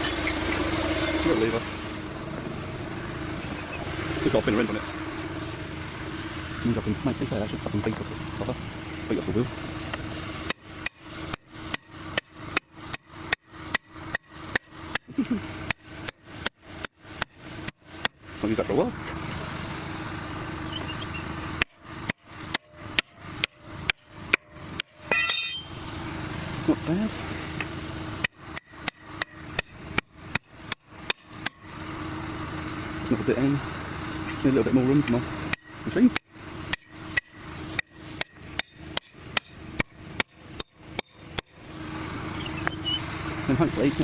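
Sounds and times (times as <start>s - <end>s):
hammer strikes on wheel: 9.9s - 18.2s, 21.6s - 25.8s, 28.2s - 31.6s, 35.5s - 41.5s
hammer striking metal: 22.5s - 25.8s, 35.5s - 41.5s
ringing metallic clang: 25.0s - 25.8s.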